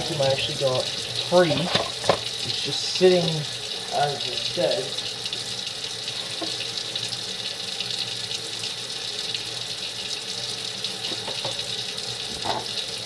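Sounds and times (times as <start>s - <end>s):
tap running into sink: 0.0s - 2.8s, 11.0s - 13.0s.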